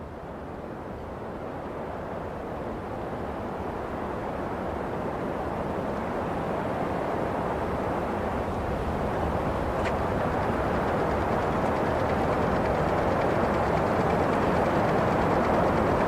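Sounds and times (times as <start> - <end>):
wind blowing: 8.7 - 16.0.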